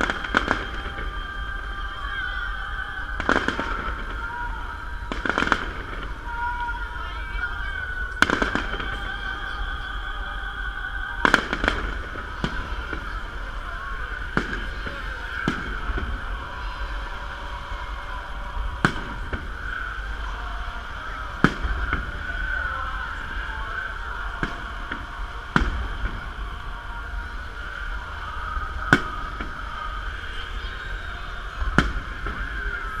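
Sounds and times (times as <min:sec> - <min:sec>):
firework shells bursting: 0:00.0 - 0:01.9, 0:03.1 - 0:06.4, 0:17.6 - 0:30.6
steady background din: 0:00.0 - 0:33.0.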